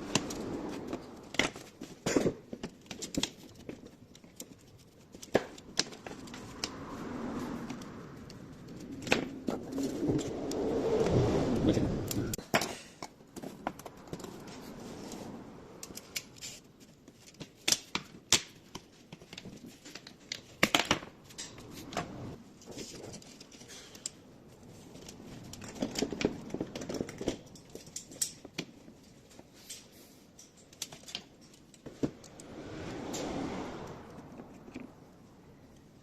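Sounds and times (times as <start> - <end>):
hand tools clicking and tapping: 12.3 - 14.7.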